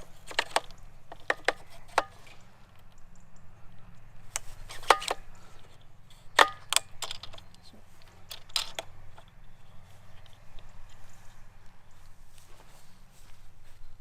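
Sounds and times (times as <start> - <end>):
metal parts clicking together: 0.0 - 3.1, 4.7 - 10.7.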